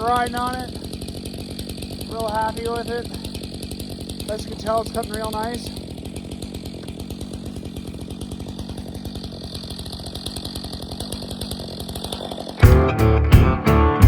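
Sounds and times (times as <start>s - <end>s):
chainsaw cutting through log: 0.0s - 13.8s
loud guitar music: 12.6s - 14.0s.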